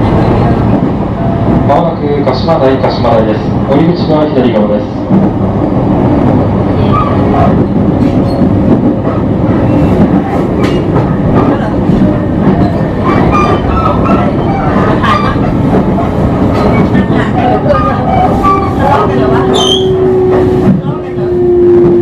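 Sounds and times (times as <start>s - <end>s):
train wheels rumbling on rail: 0.0s - 22.0s
clickety-clack of rail joints: 5.0s - 5.4s, 6.9s - 21.0s.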